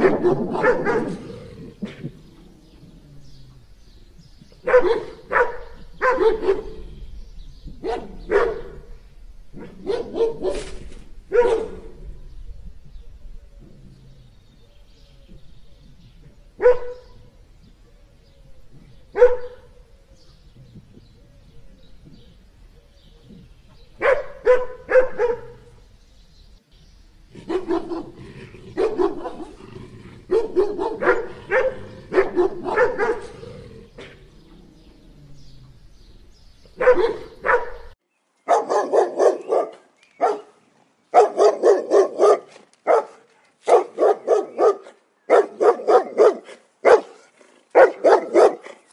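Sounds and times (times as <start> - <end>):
dog barking: 0.0 - 2.0, 4.6 - 6.8, 7.8 - 8.8, 9.6 - 11.9, 16.6 - 17.2, 19.1 - 19.7, 24.0 - 25.7, 27.4 - 28.2, 28.8 - 29.6, 30.3 - 33.4, 36.8 - 48.8.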